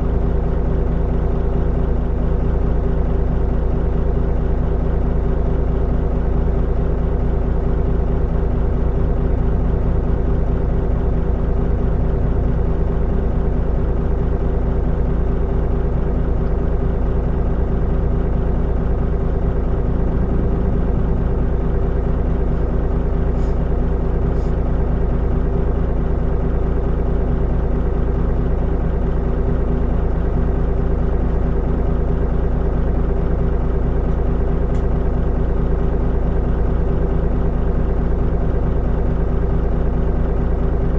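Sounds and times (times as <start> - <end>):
bus diesel engine running: 0.0 - 40.9
faint light ticks: 34.1 - 34.9.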